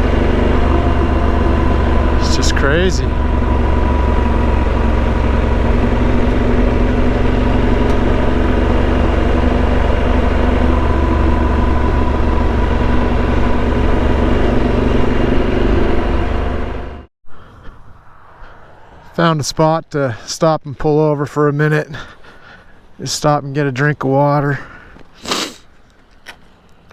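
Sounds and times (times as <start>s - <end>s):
motorcycle engine running: 0.0s - 17.1s
road noise: 0.0s - 26.9s
wind noise: 17.3s - 20.3s.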